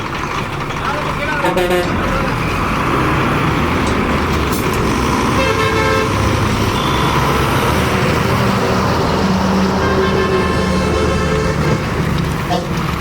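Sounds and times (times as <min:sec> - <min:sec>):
heavy truck engine running: 0:00.0 - 0:13.0
vehicle horn honking: 0:01.4 - 0:02.2, 0:05.4 - 0:06.2, 0:09.7 - 0:11.8.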